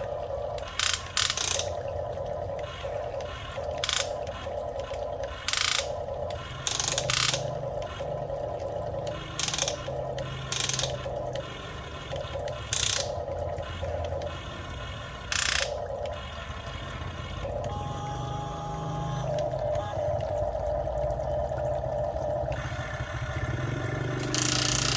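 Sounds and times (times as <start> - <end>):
toy motors whirring: 0.6 - 20.0, 24.0 - 24.9
loud rasping bursts: 24.2 - 24.9.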